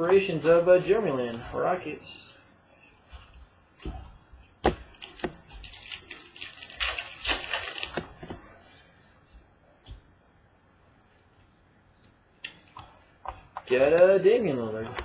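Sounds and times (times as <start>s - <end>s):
wrapper crinkling and rustling: 4.9s - 8.4s.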